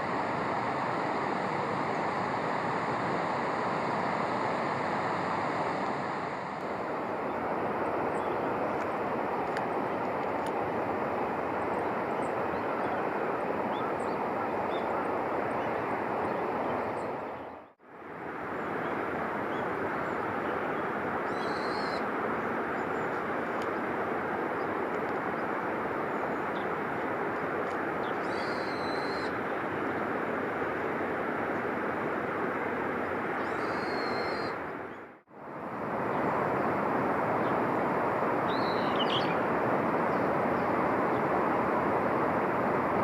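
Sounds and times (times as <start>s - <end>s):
steady rushing noise: 0.0s - 33.4s, 34.0s - 43.0s.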